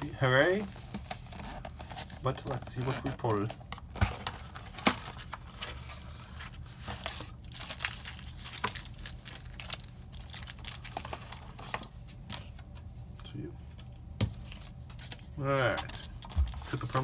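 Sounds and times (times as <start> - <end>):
packaging torn and crinkled: 7.0 - 11.6.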